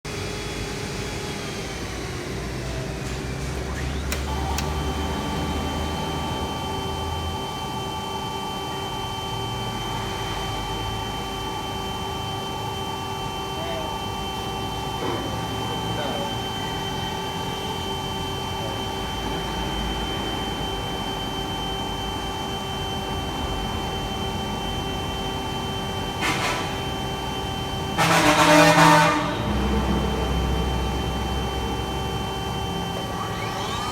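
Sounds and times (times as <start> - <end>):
vacuum pump humming and whining: 0.1 - 33.9
click: 3.8 - 4.8.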